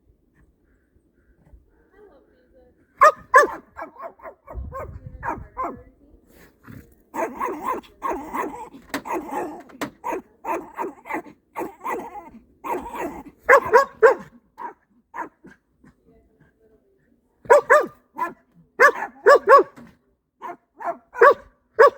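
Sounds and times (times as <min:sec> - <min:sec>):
dogs barking: 0:03.0 - 0:05.8, 0:07.2 - 0:15.6, 0:17.5 - 0:19.8, 0:20.4 - 0:21.9.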